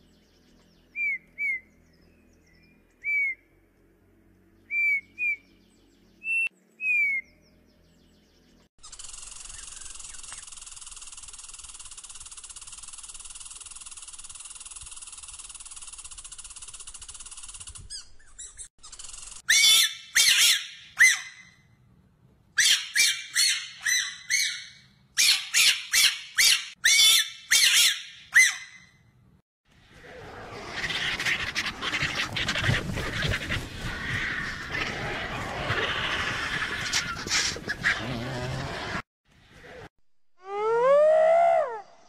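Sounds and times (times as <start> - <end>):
squirrel calling: 22.6 - 28.9
vultures hissing calls: 30.0 - 39.0.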